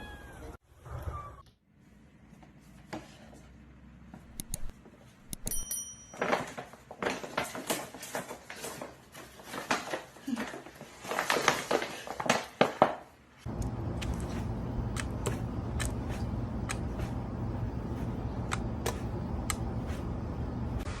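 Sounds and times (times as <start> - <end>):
high ringing tone: 5.4 - 6.2.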